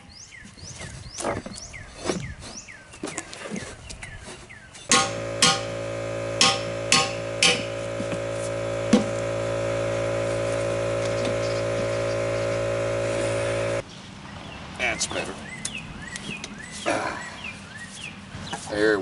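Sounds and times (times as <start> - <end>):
hammer blows: 4.9 - 13.8
steady motor hum: 4.9 - 13.8.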